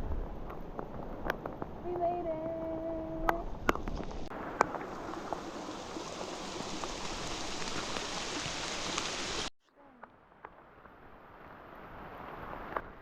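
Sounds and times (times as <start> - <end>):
raindrops ticking: 0.8 - 9.5
steady rain falling: 3.9 - 13.0.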